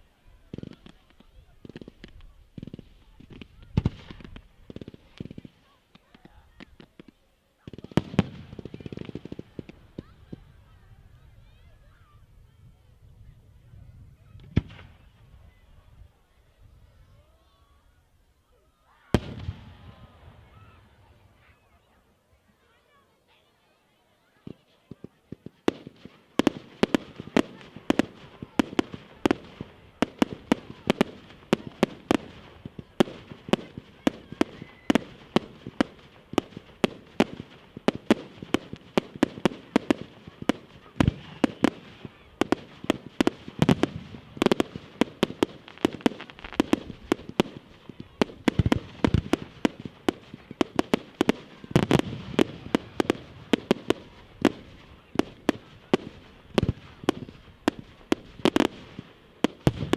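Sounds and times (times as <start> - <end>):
fireworks bangs and cracks: 0.5 - 10.7, 14.4 - 15.1, 19.1 - 21.2, 24.4 - 59.9
deep fireworks booms: 12.9 - 15.4, 19.2 - 21.2, 25.4 - 59.9.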